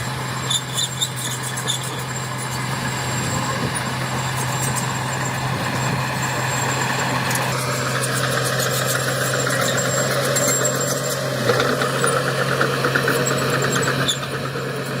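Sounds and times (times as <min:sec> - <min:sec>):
diesel engine humming: 0:00.1 - 0:12.8
fast clicking and rattling: 0:02.4 - 0:06.8.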